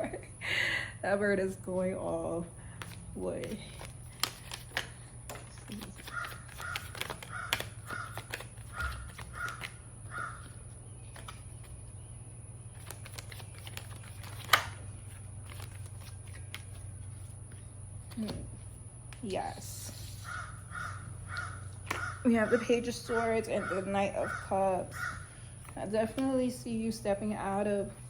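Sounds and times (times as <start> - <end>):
steady low hum: 0.0 - 28.0
bird calling: 6.1 - 11.2, 19.9 - 25.7.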